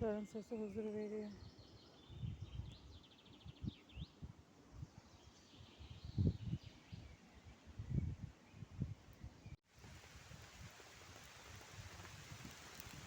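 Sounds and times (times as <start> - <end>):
small songbirds chirping: 0.0 - 9.6
steady outdoor hiss: 9.7 - 13.0.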